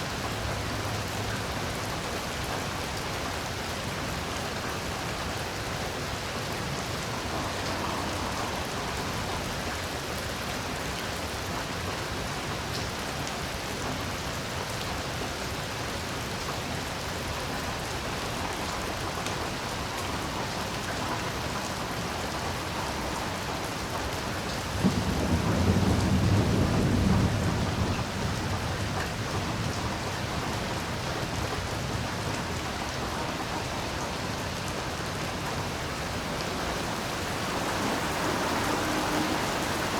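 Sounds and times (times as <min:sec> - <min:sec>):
heavy rain: 0:00.0 - 0:39.9
low rumble of thunder: 0:24.6 - 0:32.3.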